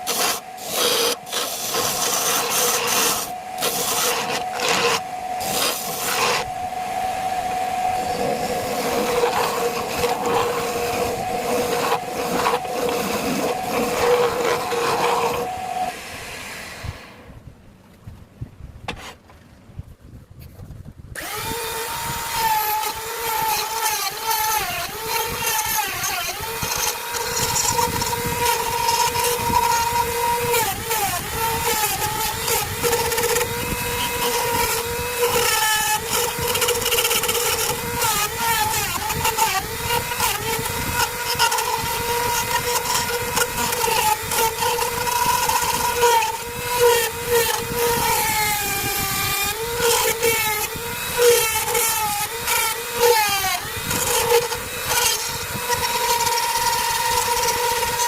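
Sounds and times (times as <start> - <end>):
wood lathe motor hum: 0.0 - 17.3, 21.2 - 58.0
rough scraping: 0.0 - 17.4.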